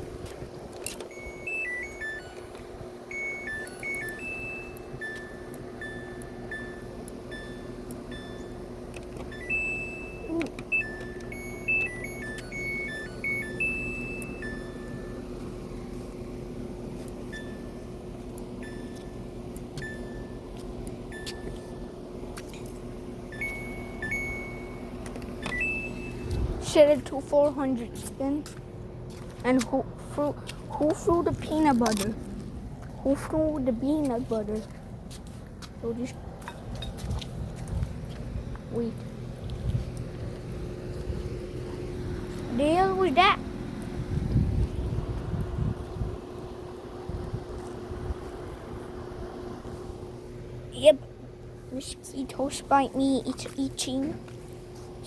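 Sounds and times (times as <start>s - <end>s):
washing machine hum: 0.0s - 55.0s
washing machine beeping tune: 0.8s - 22.2s, 23.0s - 27.0s
single beeps: 1.1s - 8.6s, 9.2s - 15.2s, 17.3s - 17.7s, 21.1s - 21.7s, 23.3s - 26.4s.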